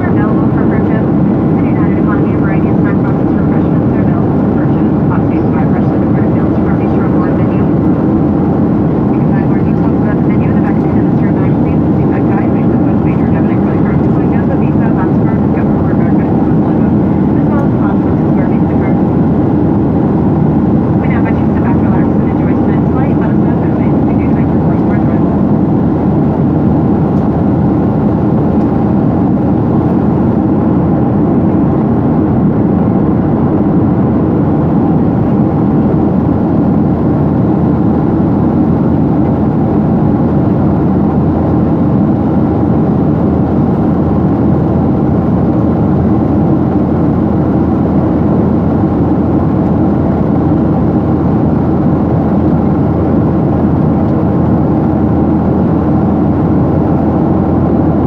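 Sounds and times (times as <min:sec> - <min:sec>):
jet airliner cabin noise: 0:00.0 - 0:58.0.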